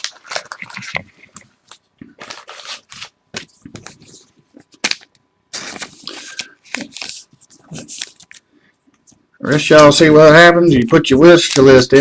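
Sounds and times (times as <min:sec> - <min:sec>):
plastic packaging rustling: 0:00.0 - 0:08.5, 0:11.3 - 0:12.0.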